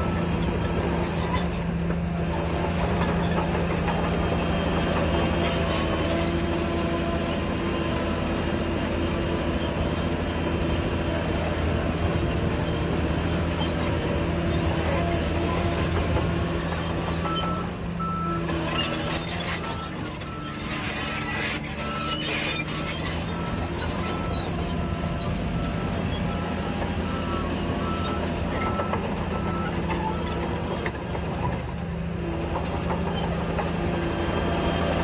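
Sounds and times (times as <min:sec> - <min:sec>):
heavy diesel engine under load: 0:00.0 - 0:35.0
reversing alarm beeping: 0:16.8 - 0:31.0.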